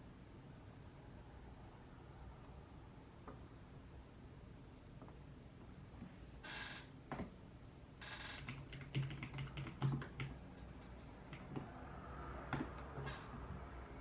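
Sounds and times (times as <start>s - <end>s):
keyboard typing: 8.0s - 11.8s, 12.4s - 14.0s.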